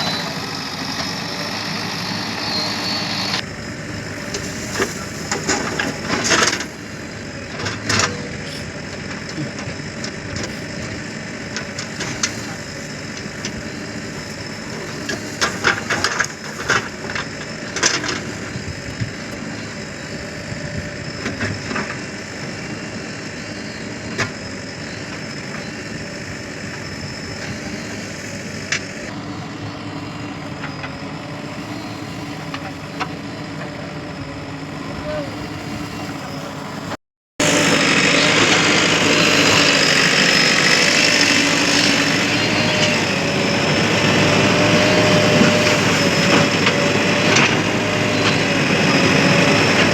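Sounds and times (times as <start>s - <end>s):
diesel engines running: 0.0s - 49.9s.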